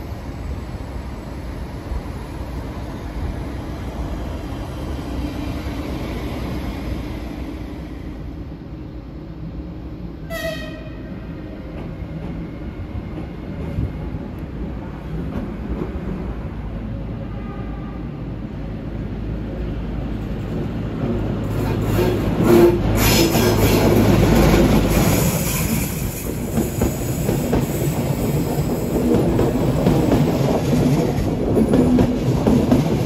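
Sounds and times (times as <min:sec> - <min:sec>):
train rumbling on rails: 0:00.0 - 0:33.0
train horn toot: 0:10.2 - 0:11.1, 0:17.3 - 0:18.1.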